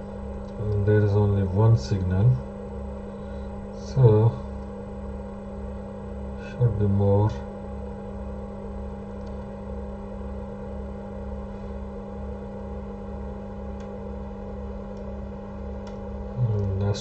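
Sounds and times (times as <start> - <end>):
electrical hum with pulsing throb: 0.0 - 17.0
faint clicks: 9.1 - 9.5.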